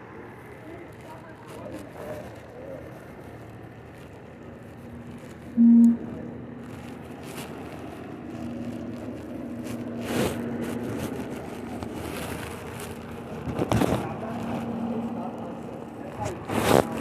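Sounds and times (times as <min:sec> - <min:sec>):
low outdoor hum: 0:00.0 - 0:17.0
faint steady tone: 0:05.6 - 0:06.3.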